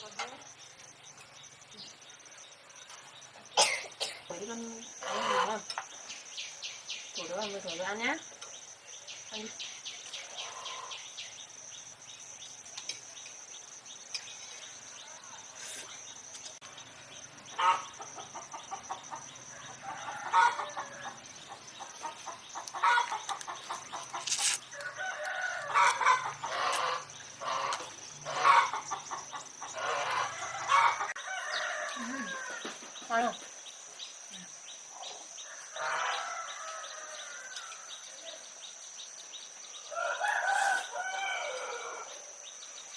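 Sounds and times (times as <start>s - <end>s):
chickens clucking: 5.0s - 5.9s, 17.4s - 33.1s.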